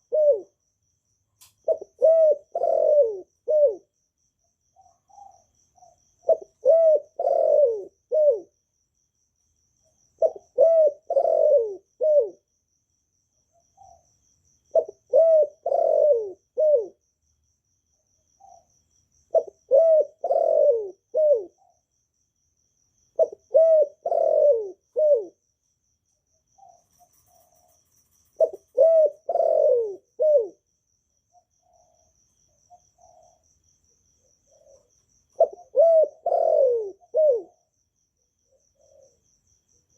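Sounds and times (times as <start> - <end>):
dove cooing: 0.0 - 0.6, 1.6 - 4.0, 4.8 - 8.6, 10.2 - 12.5, 14.7 - 17.0, 19.3 - 21.8, 23.2 - 25.4, 26.6 - 30.7, 31.4 - 33.4, 34.2 - 37.7, 38.5 - 39.3.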